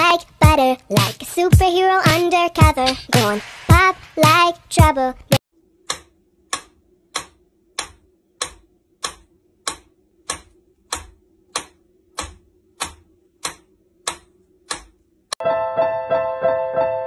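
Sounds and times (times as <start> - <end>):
metronome ticking: 5.9 - 14.9.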